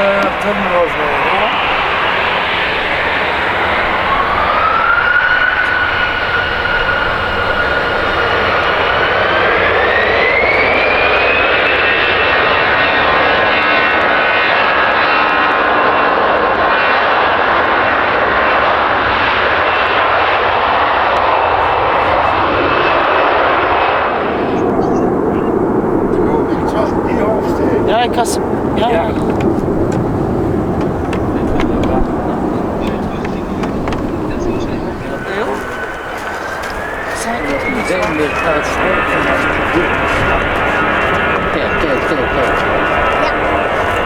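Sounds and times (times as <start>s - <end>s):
jet engines spooling up: 0.0s - 44.0s.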